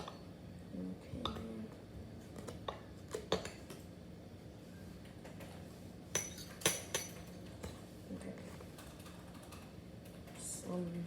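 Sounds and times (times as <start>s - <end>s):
kitchenware clinking: 6.1s - 7.4s.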